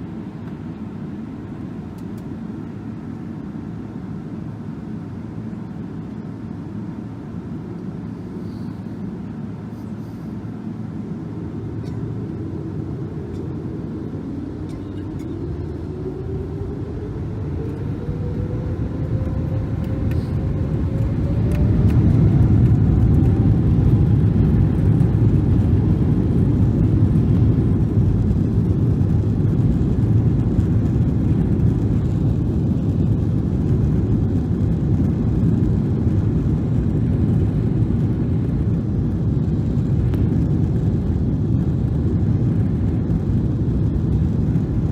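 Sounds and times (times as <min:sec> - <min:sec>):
jet engines spooling up: 0:06.0 - 0:44.9.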